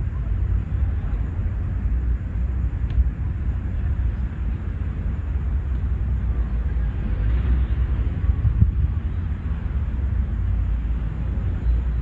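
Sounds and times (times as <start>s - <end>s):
steady low rumble: 0.0s - 12.0s
faint tick: 2.8s - 3.1s, 5.7s - 5.9s.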